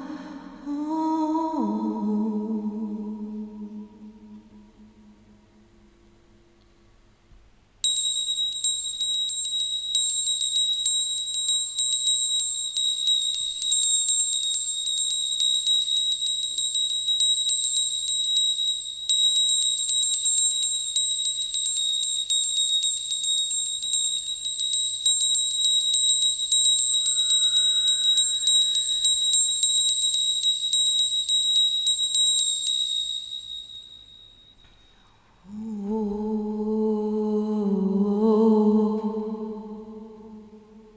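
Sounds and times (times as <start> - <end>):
small hand bell ringing: 7.8 - 35.0.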